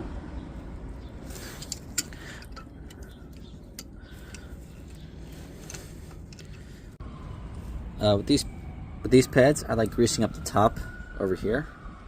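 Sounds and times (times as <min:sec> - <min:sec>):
metal tools clicking: 0:01.2 - 0:06.8.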